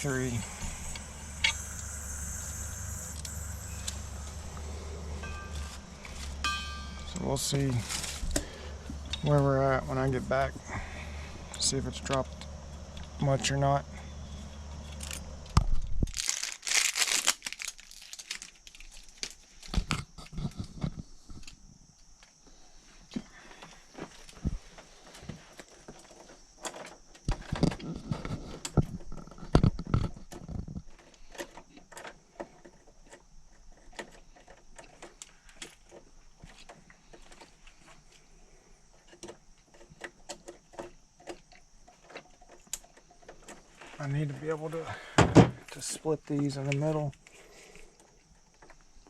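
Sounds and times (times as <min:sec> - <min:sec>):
crinkling and rustling: 0:00.0 - 0:10.6, 0:14.5 - 0:22.4, 0:23.0 - 0:38.3, 0:38.9 - 0:44.8
faint high hiss: 0:00.0 - 0:12.4.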